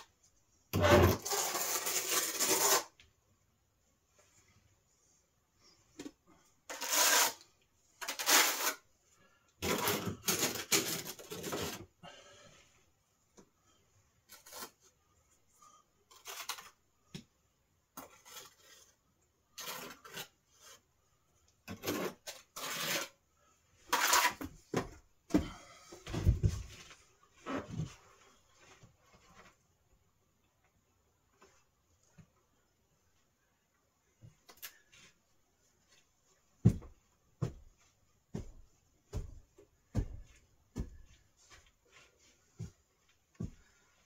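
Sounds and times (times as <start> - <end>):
rubbing and scraping: 0.8 - 3.0, 6.7 - 8.9, 9.6 - 12.0, 14.2 - 15.0, 15.6 - 17.0, 17.9 - 23.2, 23.8 - 24.8.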